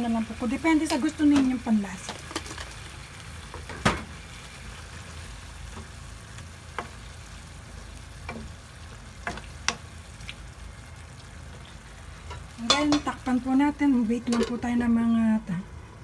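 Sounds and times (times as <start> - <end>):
food sizzling in a pan: 0.0 - 15.3
spoon tapping pan: 6.7 - 7.1, 8.2 - 8.6, 9.2 - 9.9, 12.3 - 13.3.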